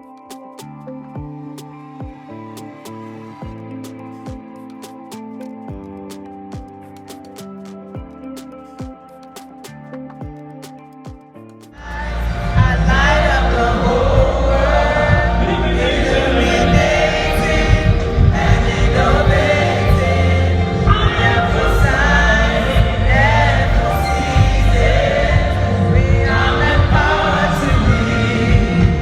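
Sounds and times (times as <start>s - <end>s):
gospel choir with band: 11.8s - 29.0s.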